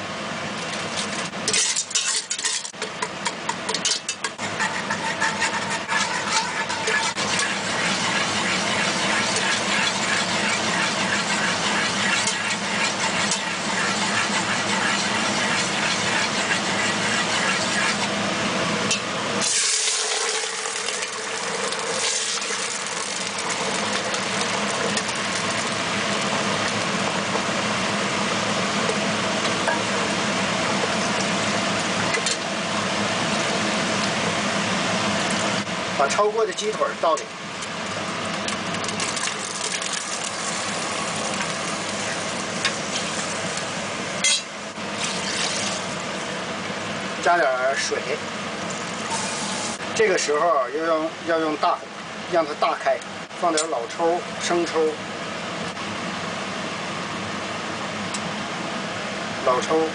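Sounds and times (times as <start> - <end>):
mechanical hum: 0.0 - 59.9
sugar bubbling and sizzling: 19.4 - 27.3, 37.7 - 46.3.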